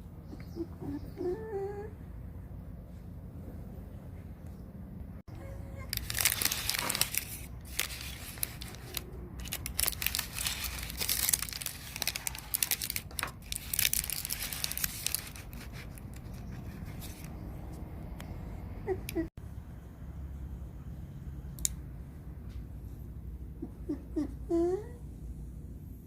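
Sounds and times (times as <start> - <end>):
crinkling and crackling clicks: 5.8 - 17.4.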